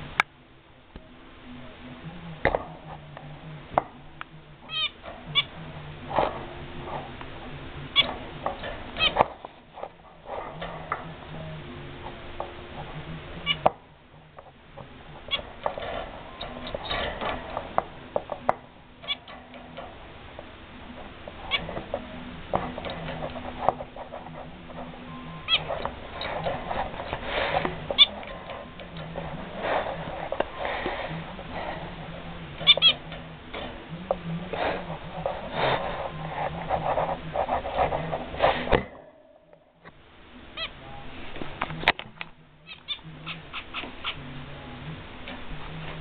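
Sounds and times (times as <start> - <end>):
finch calling: 4.7 - 5.6, 7.9 - 8.2, 9.0 - 9.3, 18.4 - 19.3, 25.0 - 27.2, 27.8 - 29.2, 32.6 - 33.1, 42.6 - 44.2.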